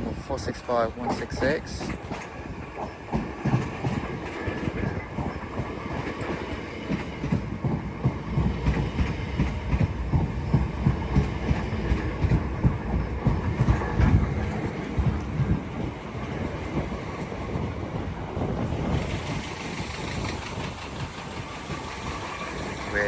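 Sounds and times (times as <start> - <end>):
train wheels clattering over track: 0.0 - 23.0.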